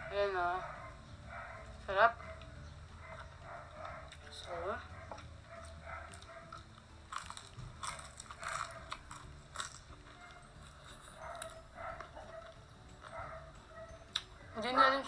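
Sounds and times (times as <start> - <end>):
person chewing crunchy food: 5.1 - 13.5.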